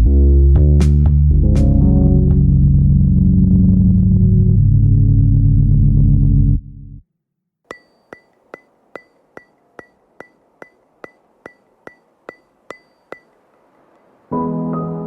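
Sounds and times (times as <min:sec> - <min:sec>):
ticking clicks with high ring: 0:07.7 - 0:14.2
soft piano music: 0:14.3 - 0:15.0.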